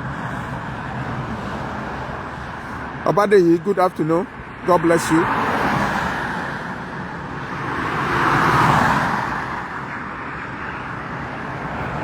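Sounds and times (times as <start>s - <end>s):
car passing by: 0.0s - 3.0s, 4.5s - 12.0s
traffic noise: 0.0s - 12.0s.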